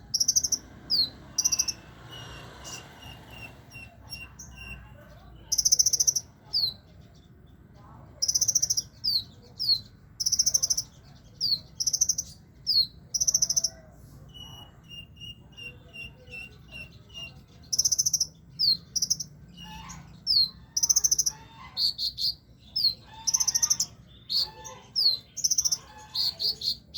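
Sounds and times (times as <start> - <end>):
sunbird singing buzzes and whistles: 0.1 - 4.8.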